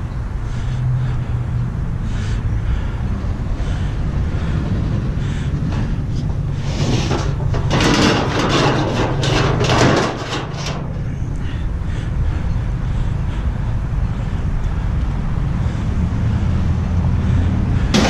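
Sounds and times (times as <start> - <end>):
vehicle engine droning: 0.0 - 18.0
loud rattling and clattering: 3.6 - 13.4, 17.2 - 18.0.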